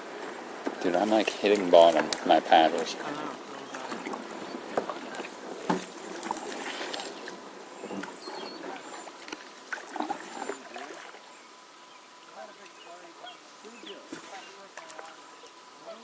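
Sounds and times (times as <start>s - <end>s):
paddle knocking on creek bottom: 0.0s - 11.4s
paddles splashing in water: 0.0s - 16.0s.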